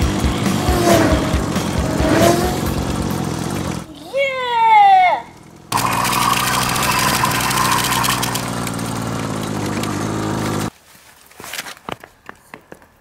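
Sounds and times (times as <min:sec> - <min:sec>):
small motorbike engine running: 0:00.0 - 0:03.9, 0:04.8 - 0:10.7.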